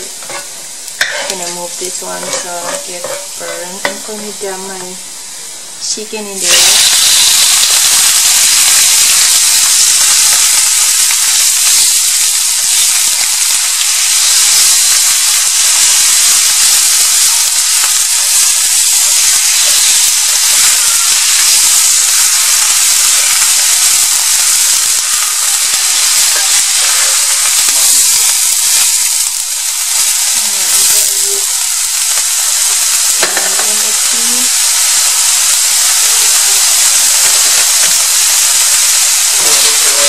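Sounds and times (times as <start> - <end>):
chicken sizzling in hot oil: 0.0 - 4.3, 6.3 - 40.0.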